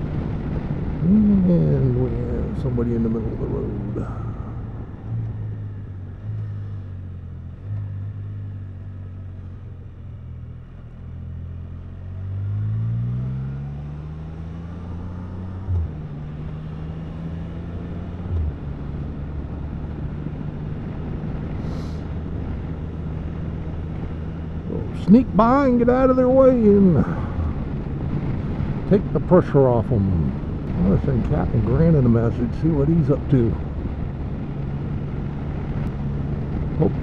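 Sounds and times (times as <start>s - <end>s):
motorcycle engine accelerating: 0.6s - 28.9s.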